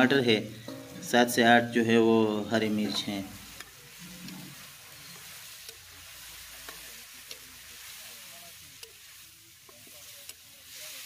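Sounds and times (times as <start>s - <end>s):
food sizzling in a pan: 0.0s - 11.0s
metal spatula scraping a pan: 2.6s - 11.0s.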